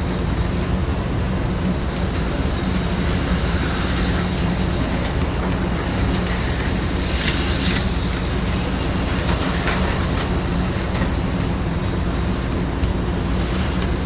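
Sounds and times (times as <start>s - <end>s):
toy cars clicking on track: 3.0s - 11.6s.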